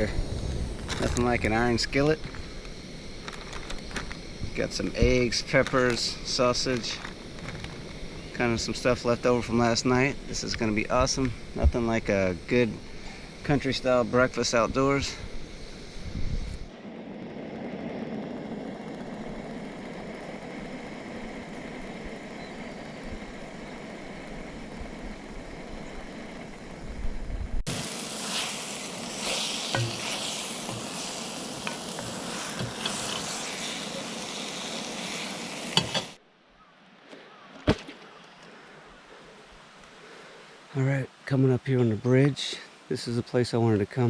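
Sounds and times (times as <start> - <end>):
food sizzling in a skillet: 27.7 - 36.2.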